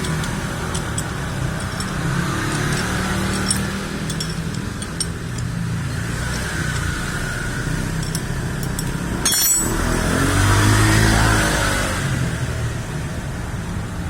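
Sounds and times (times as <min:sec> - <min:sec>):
metallic clink: 0:00.0 - 0:10.1
vehicle passing close by: 0:00.0 - 0:12.8
vehicle engines running: 0:00.0 - 0:14.0.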